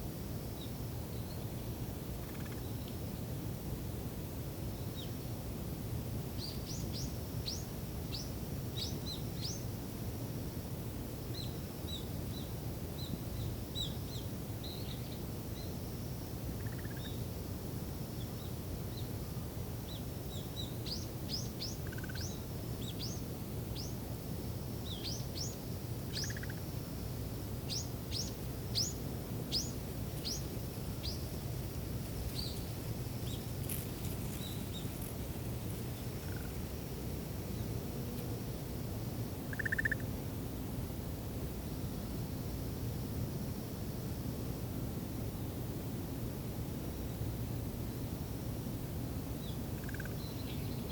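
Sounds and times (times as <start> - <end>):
small birds chirping: 19.9 - 23.2, 27.7 - 36.7, 49.4 - 50.9.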